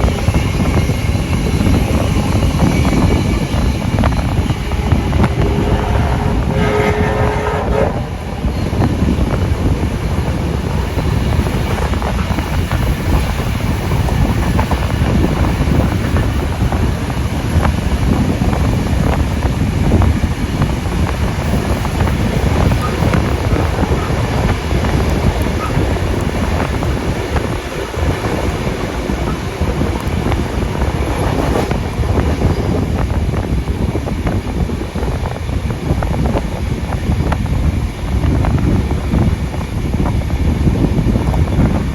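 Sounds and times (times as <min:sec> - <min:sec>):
train cars rumbling on rails: 0:00.0 - 0:41.9
wind on microphone: 0:00.0 - 0:41.9.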